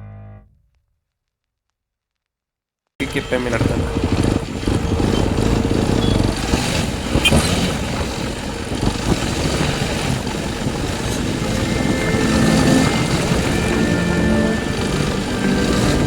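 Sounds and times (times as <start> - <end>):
road noise: 3.0 - 16.0
motorcycle engine running: 3.1 - 16.0
wind noise: 3.5 - 16.0.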